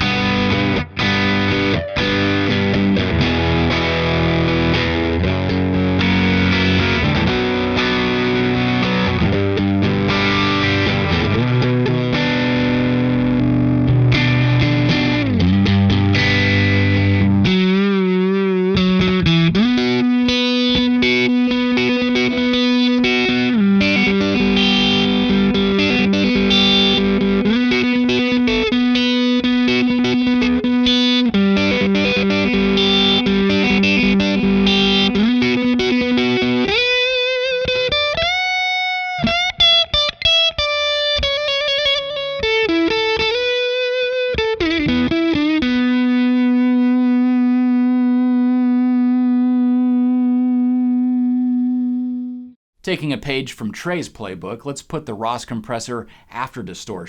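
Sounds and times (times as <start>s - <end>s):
overdriven electric guitar: 0.0s - 52.6s.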